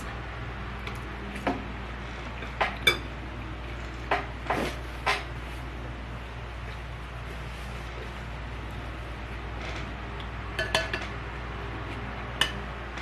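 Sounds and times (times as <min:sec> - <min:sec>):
steady low hum: 0:00.0 - 0:13.0
utensils clinking on dishes: 0:02.4 - 0:03.1, 0:10.6 - 0:11.2.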